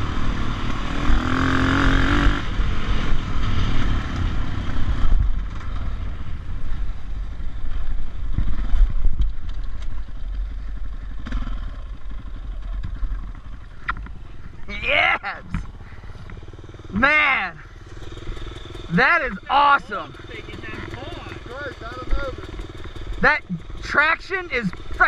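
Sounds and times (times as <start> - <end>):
dirt bike engine revving: 0.0 - 9.0, 10.9 - 12.3, 12.9 - 25.0.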